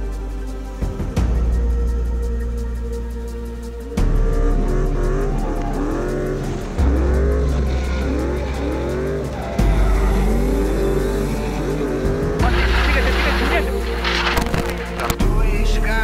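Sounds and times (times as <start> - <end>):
music with deep bass line: 0.0 - 16.0
car engines revving: 3.8 - 16.0.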